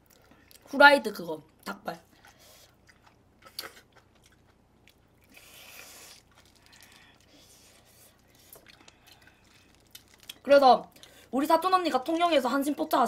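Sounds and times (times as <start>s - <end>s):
person chewing: 2.1s - 10.4s.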